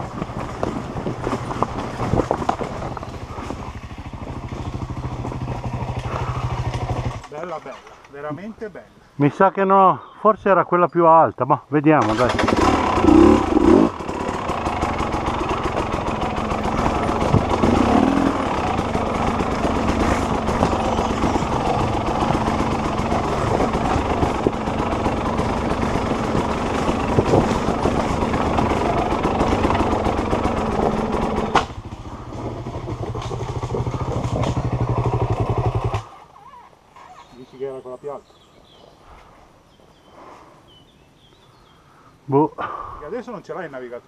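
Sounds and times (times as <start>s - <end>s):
motorcycle engine running: 0.0s - 7.3s, 12.0s - 36.2s.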